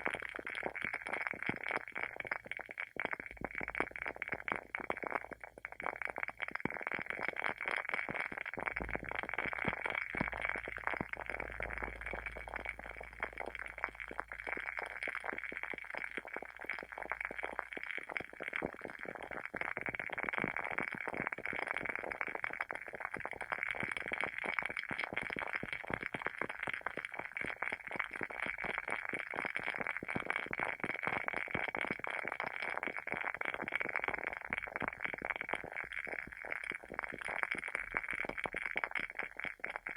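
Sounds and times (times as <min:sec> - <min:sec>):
candle wick crackling: 0:08.4 - 0:17.9.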